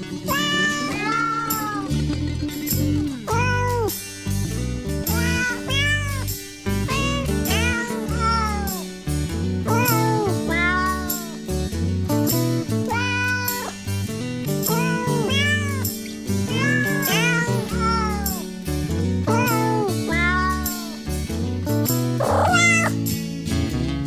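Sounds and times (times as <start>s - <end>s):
kittens mewing: 0.0s - 1.9s, 3.3s - 4.0s, 5.1s - 8.9s, 9.7s - 11.4s, 12.9s - 13.8s, 14.7s - 18.5s, 19.2s - 21.0s, 22.2s - 23.0s
background music with low notes: 0.0s - 24.0s.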